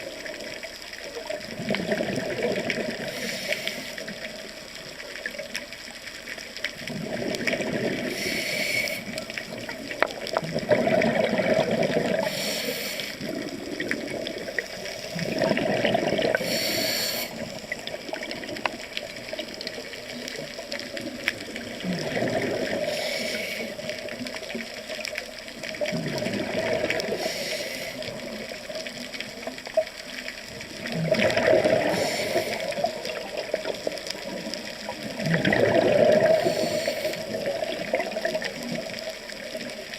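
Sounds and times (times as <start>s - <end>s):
exhaled air bubbling: 0.0s - 5.9s, 6.5s - 39.9s
regulator inhale hiss: 3.0s - 4.4s, 8.0s - 9.4s, 12.1s - 13.4s, 14.5s - 15.4s, 16.3s - 17.7s, 22.8s - 24.2s, 27.0s - 28.5s, 31.8s - 33.0s, 36.2s - 37.5s.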